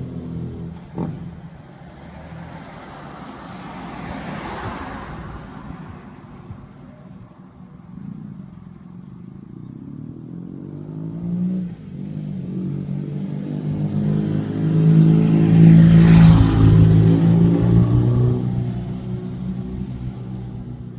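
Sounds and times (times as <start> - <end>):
motorcycle engine revving: 7.9 - 20.9.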